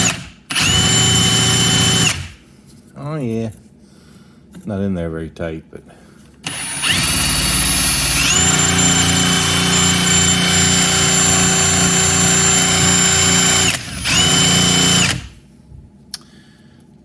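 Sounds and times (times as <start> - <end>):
electric drill whining: 0.0 - 2.4, 6.5 - 15.4.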